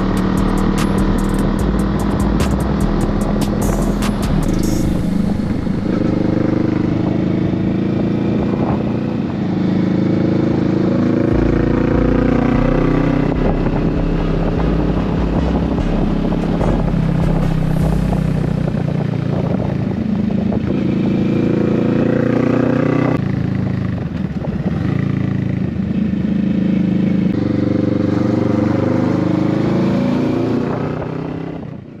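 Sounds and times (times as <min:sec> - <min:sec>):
motorcycle engine running: 0:00.0 - 0:32.0
wind rumble on microphone: 0:01.6 - 0:22.5, 0:23.1 - 0:26.1.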